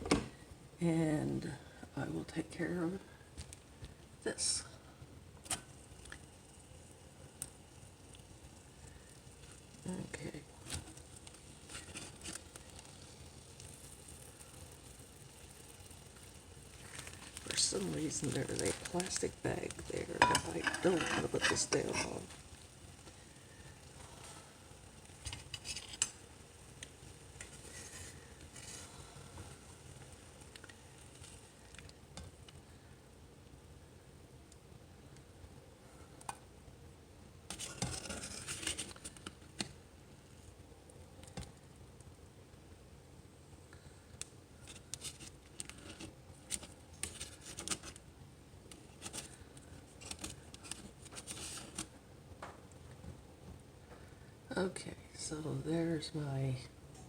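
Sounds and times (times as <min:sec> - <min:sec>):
food and utensils being handled: 0:10.6 - 0:13.0, 0:16.2 - 0:32.6, 0:37.5 - 0:39.8, 0:44.6 - 0:48.0, 0:48.7 - 0:51.9.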